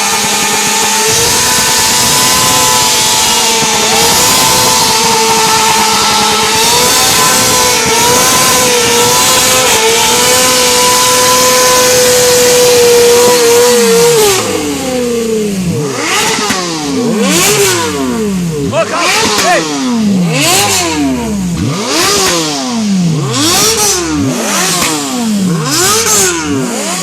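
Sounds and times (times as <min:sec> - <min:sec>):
motorcycle engines revving: 0:00.0 - 0:27.0.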